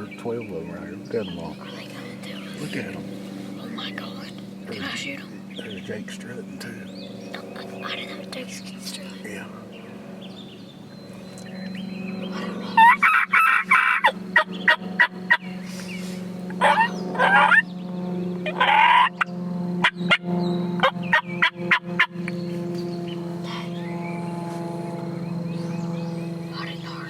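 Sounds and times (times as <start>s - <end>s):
turkeys gobbling: 12.4s - 15.4s, 16.5s - 17.6s, 18.4s - 20.2s, 20.8s - 22.1s.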